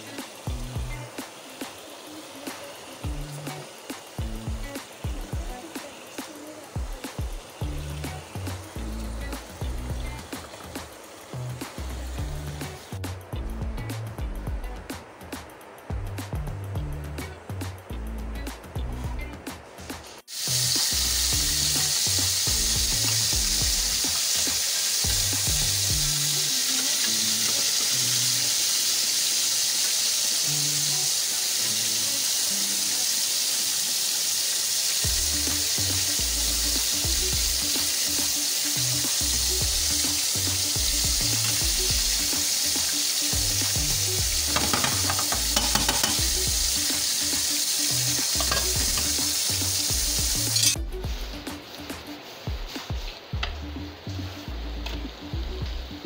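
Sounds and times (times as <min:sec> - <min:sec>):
background music with bass: 0:00.0 - 0:01.2, 0:03.0 - 0:05.6, 0:06.8 - 0:26.4, 0:35.0 - 0:56.0
meat sizzling in a pan: 0:00.0 - 0:14.4, 0:19.8 - 0:53.2.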